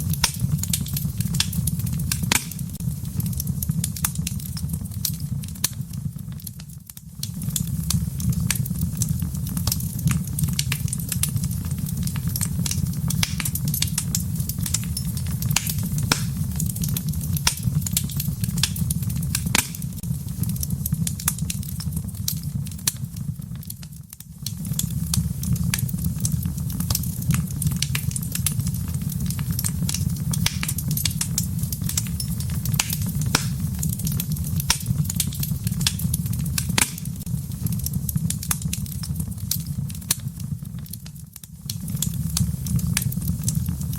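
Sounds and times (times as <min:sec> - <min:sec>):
sharp pops and snaps: 0:00.0 - 0:05.8, 0:06.4 - 0:43.9
wood fire crackling: 0:00.0 - 0:43.9.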